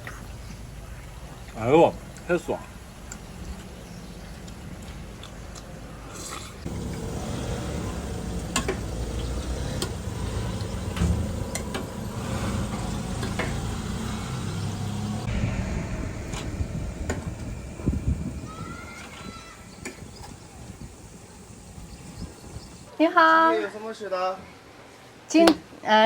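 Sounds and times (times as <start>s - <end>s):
low hum: 0.0s - 22.9s
steady hiss: 6.6s - 22.9s.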